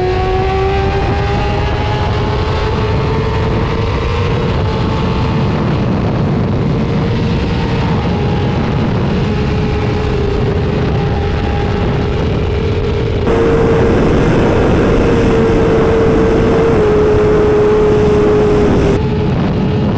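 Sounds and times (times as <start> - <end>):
heavy rushing noise: 13.3 - 19.0
motorcycle engine at high revs: 13.3 - 19.0.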